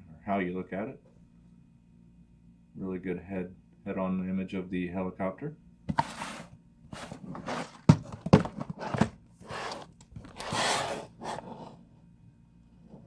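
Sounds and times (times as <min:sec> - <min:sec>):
cardboard box scraping: 0:05.9 - 0:11.8
knocks on cardboard box: 0:07.0 - 0:09.8.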